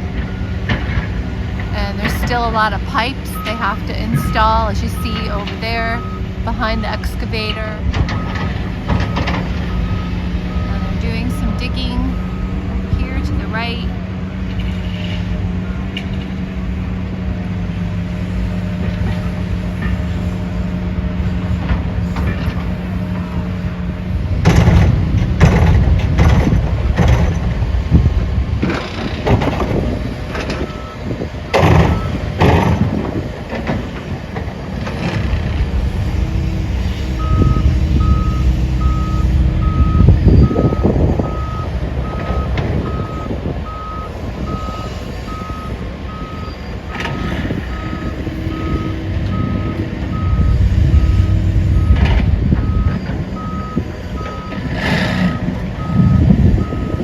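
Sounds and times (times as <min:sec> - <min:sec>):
diesel machinery engine running: 0:00.0 - 0:57.0
reversing alarm beeping: 0:01.7 - 0:14.8, 0:29.8 - 0:33.1, 0:36.6 - 0:57.0
metal clanks and bangs: 0:24.4 - 0:27.7.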